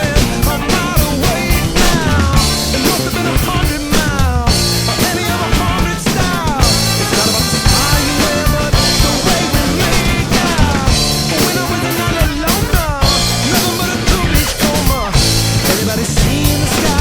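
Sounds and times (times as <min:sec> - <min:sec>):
drum kit playing: 0:00.0 - 0:17.0
rock backing music: 0:00.0 - 0:17.0.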